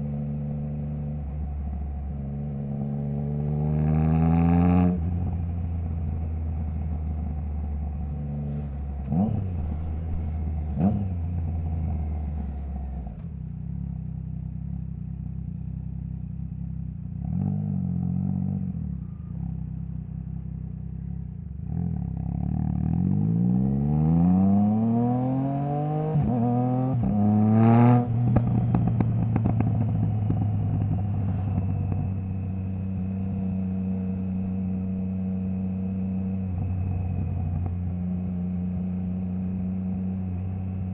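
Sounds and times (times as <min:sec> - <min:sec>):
motorcycle engine revving: 0:00.0 - 0:13.2, 0:17.2 - 0:40.9
exhaust crack: 0:08.5 - 0:12.6.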